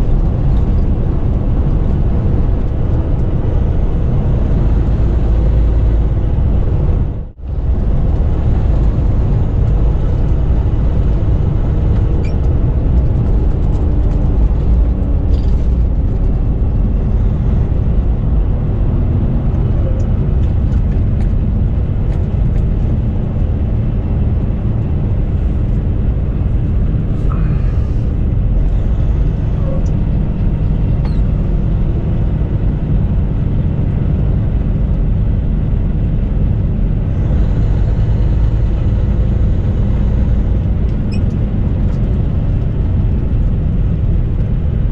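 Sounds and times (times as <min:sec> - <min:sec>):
truck engine and road rumble: 0:00.0 - 0:44.9.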